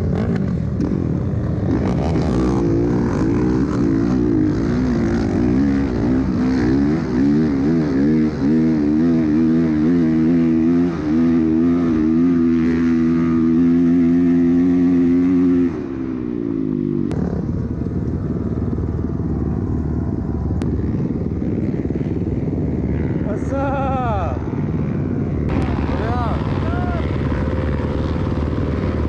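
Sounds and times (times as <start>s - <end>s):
dirt bike engine revving: 0.0s - 17.8s, 20.4s - 29.0s.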